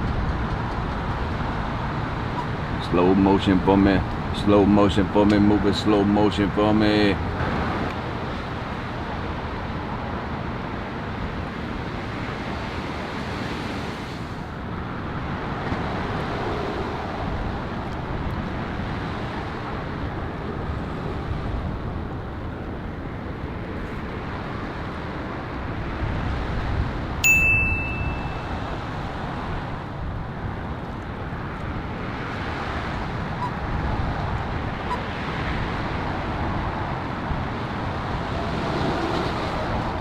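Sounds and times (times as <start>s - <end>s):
wind: 0.0s - 40.0s
sharp metallic ding: 27.2s - 28.6s.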